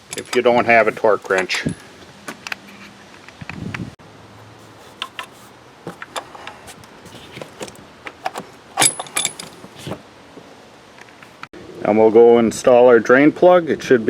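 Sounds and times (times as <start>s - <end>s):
metal hand tools clinking: 0.0s - 1.8s, 4.6s - 10.0s
metallic rattles: 4.6s - 10.0s.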